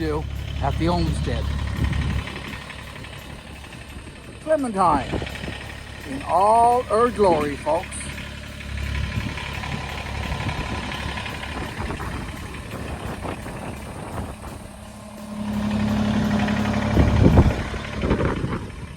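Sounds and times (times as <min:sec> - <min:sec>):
tractor diesel engine idling: 0:00.0 - 0:18.9.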